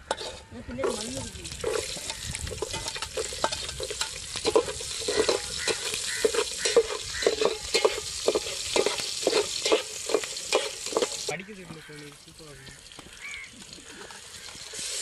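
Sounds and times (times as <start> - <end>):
ladle scraping and knocking pot: 0.0 - 11.3
onions sizzling in hot oil: 0.0 - 15.0.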